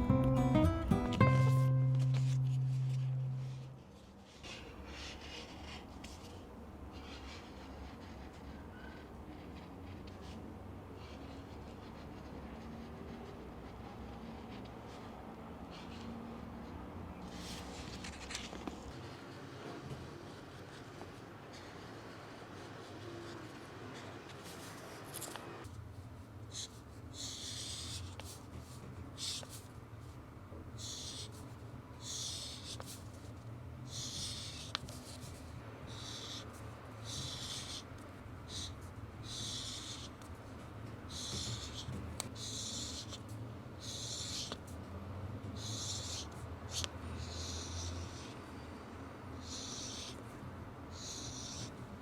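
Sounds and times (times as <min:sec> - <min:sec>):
drawing tool scratching on paper: 0:26.6 - 0:29.7, 0:30.8 - 0:33.2, 0:33.9 - 0:40.4, 0:41.0 - 0:44.7, 0:45.5 - 0:48.6, 0:49.4 - 0:50.3, 0:50.9 - 0:52.0.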